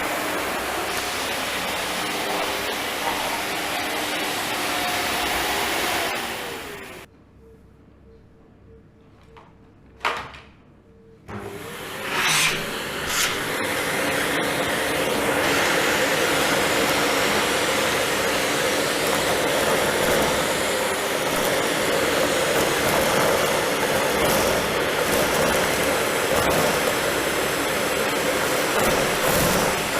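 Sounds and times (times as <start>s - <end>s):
vacuum cleaner running: 0.0s - 7.1s, 11.3s - 29.9s.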